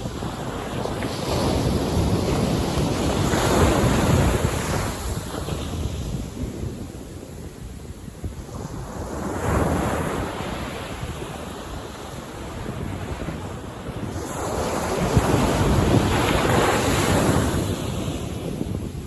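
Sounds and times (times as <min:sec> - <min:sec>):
ocean waves breaking on beach: 0:00.0 - 0:19.0.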